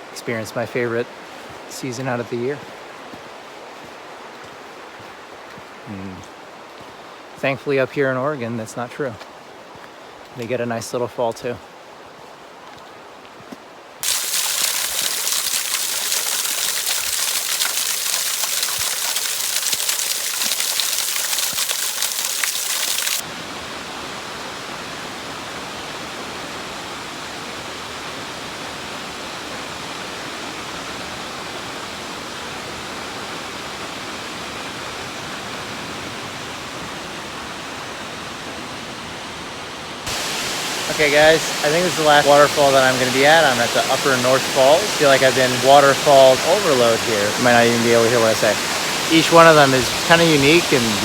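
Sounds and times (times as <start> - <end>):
waterfall rushing: 14.0 - 23.3, 40.1 - 51.0.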